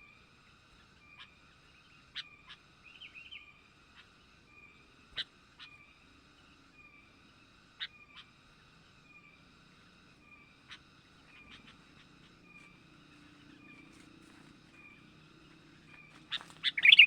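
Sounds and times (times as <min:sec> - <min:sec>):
bird calls: 0:10.3 - 0:17.0
sharp bird chirps: 0:16.0 - 0:17.0.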